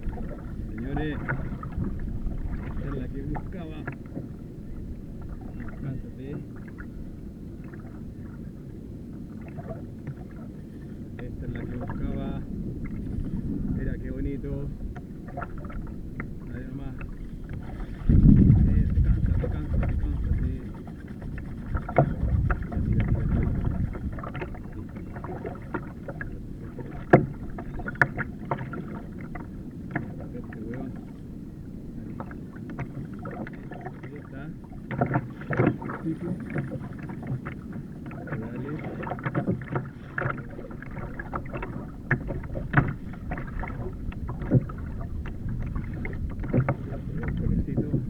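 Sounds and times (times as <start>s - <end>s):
water splashing around kayak: 0.0s - 48.0s
knocks on kayak hull: 27.0s - 28.7s.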